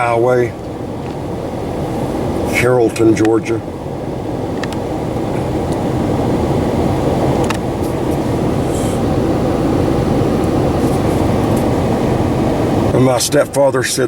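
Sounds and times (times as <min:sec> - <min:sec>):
car cabin engine and road noise: 0:00.0 - 0:14.0.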